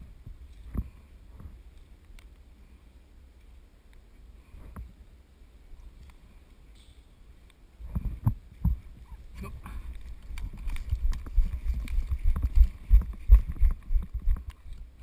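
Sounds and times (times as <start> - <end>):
footsteps: 7.8 - 14.9.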